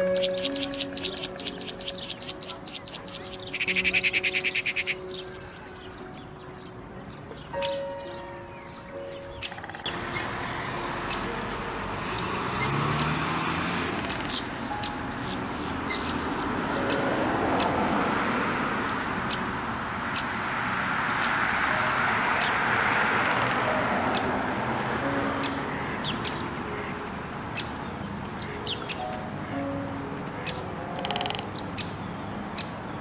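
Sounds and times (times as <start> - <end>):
high bird chirps: 0.0 - 13.4, 14.0 - 17.8.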